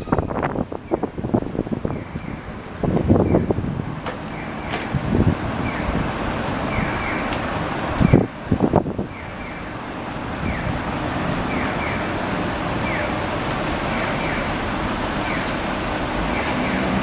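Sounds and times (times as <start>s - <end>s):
thin high steady whine: 0.0s - 17.0s
vehicle engine and street noise: 0.0s - 17.0s.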